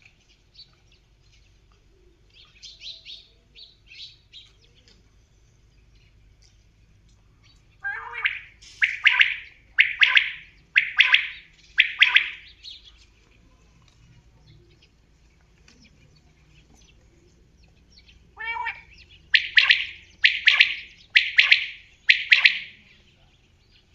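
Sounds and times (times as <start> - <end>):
gamebird calling harshly: 7.8 - 12.5, 18.4 - 22.8.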